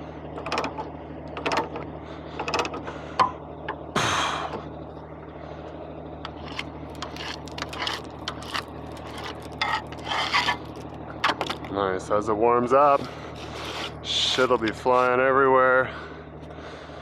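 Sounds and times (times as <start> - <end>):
low engine drone: 0.0 - 17.0
truck cab rattling and clicking: 0.3 - 3.9, 10.6 - 11.8.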